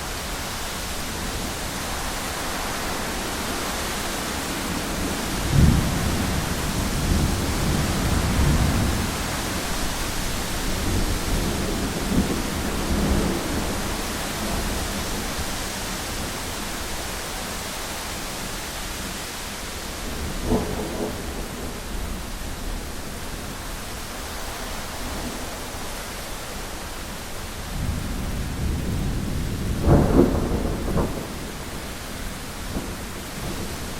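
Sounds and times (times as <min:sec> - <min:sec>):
heavy rain on a window: 0:00.0 - 0:33.9
thunder rumbling: 0:04.8 - 0:17.0, 0:20.0 - 0:23.6, 0:27.6 - 0:33.9.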